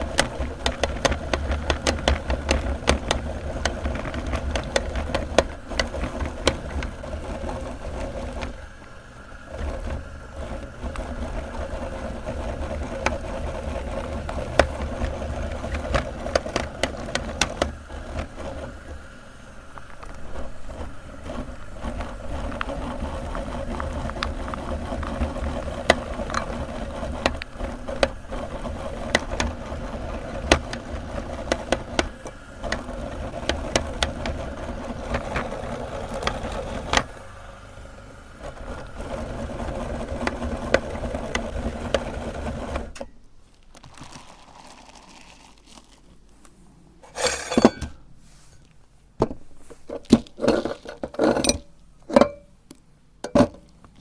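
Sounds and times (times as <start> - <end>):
electric meat grinder running: 0.0 - 18.9, 21.1 - 42.9
clinks and knocks: 47.0 - 48.0, 50.0 - 52.6.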